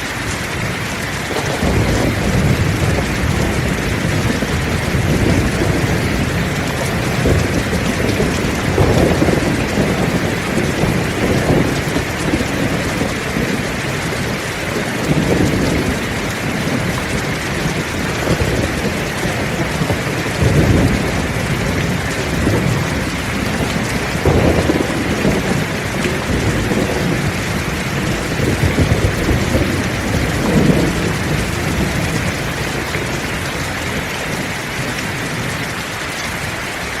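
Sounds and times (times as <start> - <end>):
heavy rain: 0.0 - 37.0
thunder rumbling: 0.0 - 37.0.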